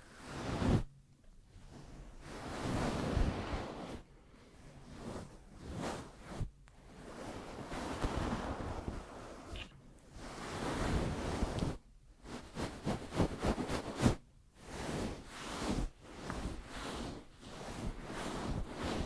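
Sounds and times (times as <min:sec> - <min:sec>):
hands rubbing near microphone: 0:04.8 - 0:19.0.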